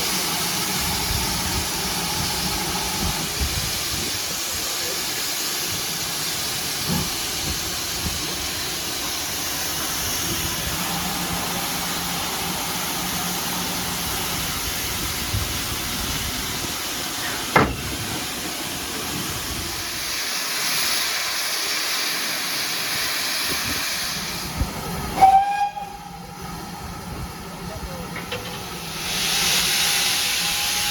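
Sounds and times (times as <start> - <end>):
steam locomotive hissing: 0.0 - 30.9
sharp knock: 17.5 - 17.9.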